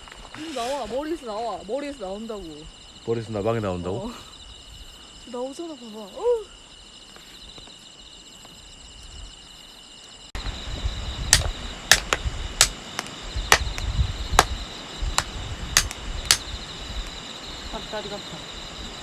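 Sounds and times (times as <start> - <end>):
crickets chirping: 0.0 - 19.0
sharp clicks: 11.4 - 13.8, 15.8 - 16.4.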